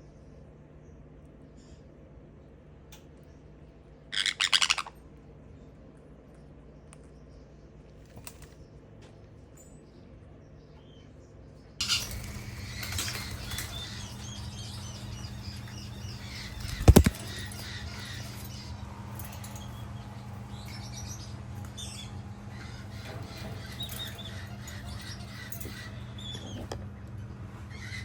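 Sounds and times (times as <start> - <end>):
conures chirping: 4.1 - 5.0, 11.8 - 28.0
steady low hum: 4.7 - 28.0.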